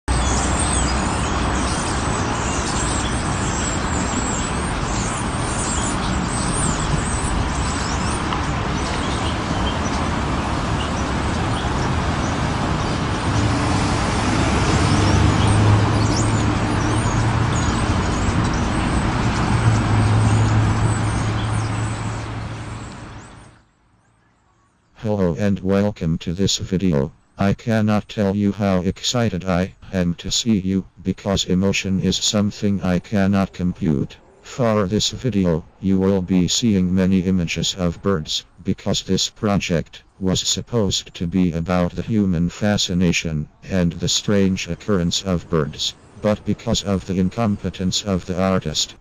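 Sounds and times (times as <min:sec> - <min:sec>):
small birds chirping: 0:00.1 - 0:13.6, 0:14.2 - 0:49.0
low engine hum: 0:00.1 - 0:23.6
street traffic: 0:00.1 - 0:49.0.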